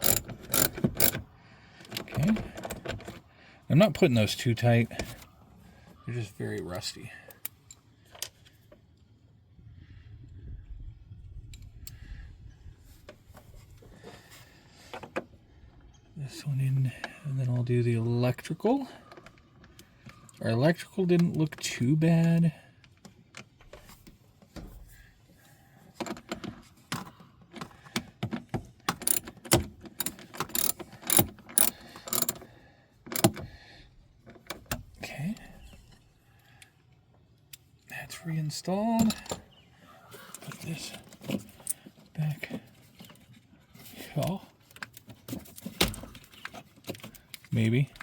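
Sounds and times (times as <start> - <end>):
sharp metal clicks: 0.0 - 1.2, 28.9 - 32.5, 33.1 - 33.5.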